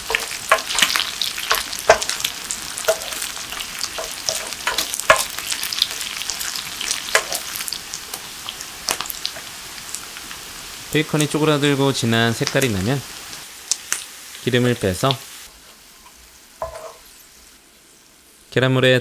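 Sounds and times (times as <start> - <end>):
wooden spatula scraping a pan: 0.0 - 5.4
potatoes sizzling in a pan: 0.0 - 18.5.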